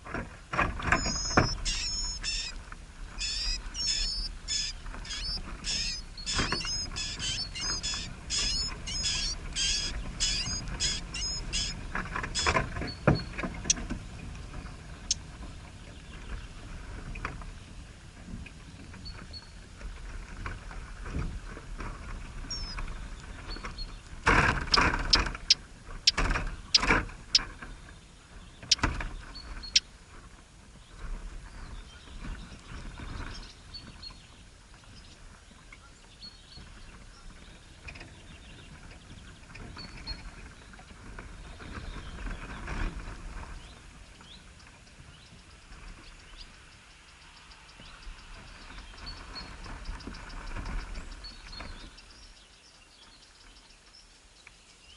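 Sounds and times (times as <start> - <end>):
sharp knocks and rustling: 0.0 - 1.8, 4.6 - 17.6, 18.2 - 27.8
faint high bird chirps: 1.0 - 2.6, 3.2 - 11.8, 22.5 - 22.8.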